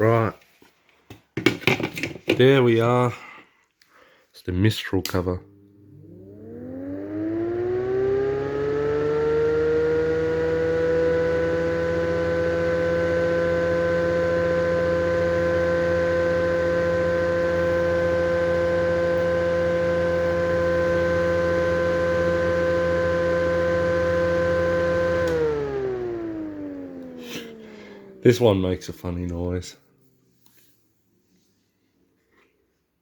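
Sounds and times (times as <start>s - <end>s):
low motor hum: 5.4s - 29.5s
exhaust fan whining: 5.4s - 29.7s.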